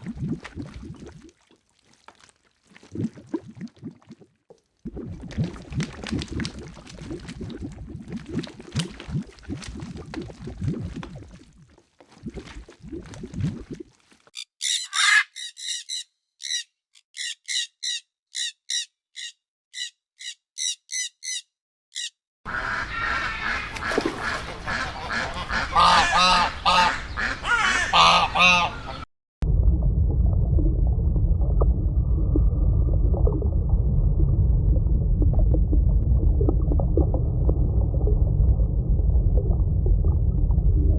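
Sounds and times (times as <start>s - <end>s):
waterfowl calling: 14.4s - 21.4s, 22.0s - 29.1s.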